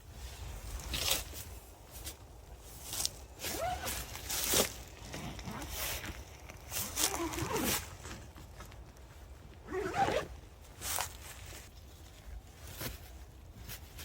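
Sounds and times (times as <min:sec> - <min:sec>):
nylon rustling: 0:00.0 - 0:14.0
zipper pulls: 0:03.4 - 0:08.1, 0:09.6 - 0:10.4.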